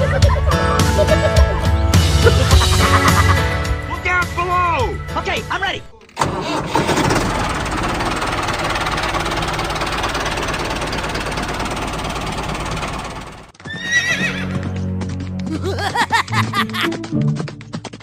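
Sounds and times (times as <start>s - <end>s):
mini tractor engine rattling: 6.0s - 16.9s.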